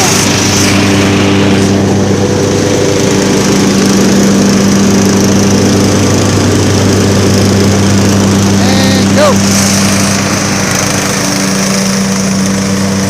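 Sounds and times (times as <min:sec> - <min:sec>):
riding lawn mower engine: 0:00.0 - 0:13.0.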